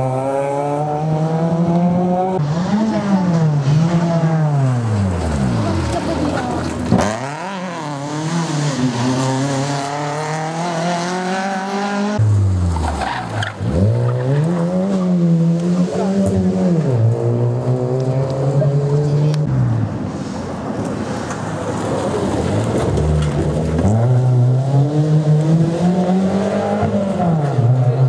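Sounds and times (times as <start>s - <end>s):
rally car engine revving: 0.0s - 20.0s, 21.0s - 28.0s.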